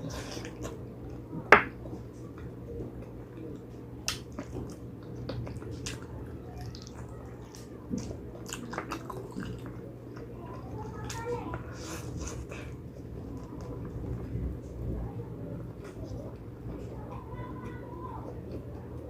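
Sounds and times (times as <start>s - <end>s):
steady low hum: 0.0s - 19.0s
wet chewing clicks: 2.4s - 11.2s.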